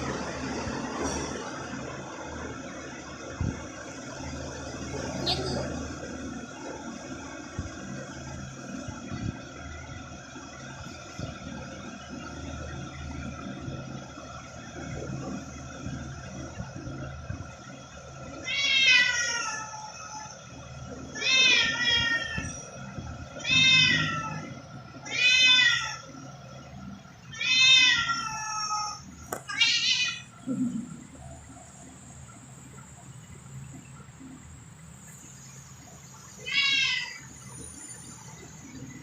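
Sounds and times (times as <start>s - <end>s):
cat meowing: 27.4s - 30.3s, 36.4s - 37.2s.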